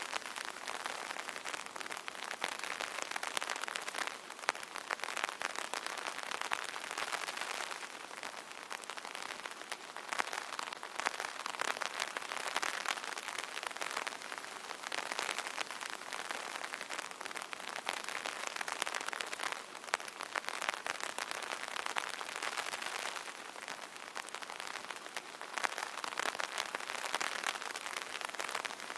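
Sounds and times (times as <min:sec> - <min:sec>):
rain pattering on umbrella: 0:00.0 - 0:28.9.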